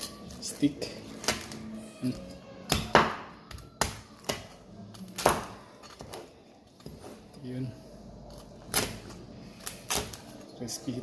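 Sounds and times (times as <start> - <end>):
knife chopping crispy pork: 2.7 - 6.1.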